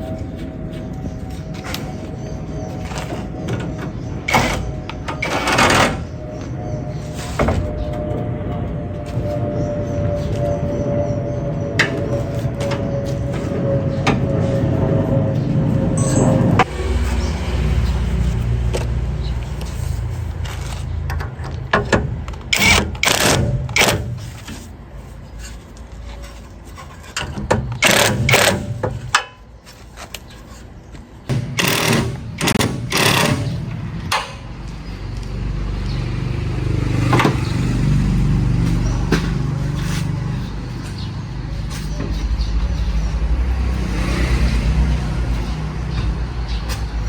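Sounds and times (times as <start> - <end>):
engine pulsing rumble: 0.0 - 29.1.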